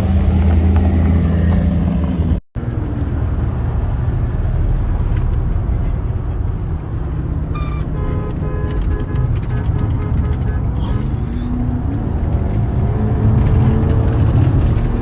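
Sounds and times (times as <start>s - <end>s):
car engine humming: 0.0s - 15.0s.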